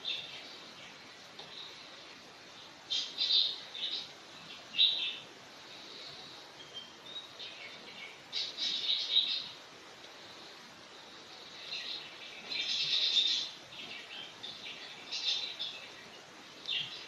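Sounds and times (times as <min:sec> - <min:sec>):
birds chirping: 0:00.0 - 0:17.0
steady background hiss: 0:00.0 - 0:17.0.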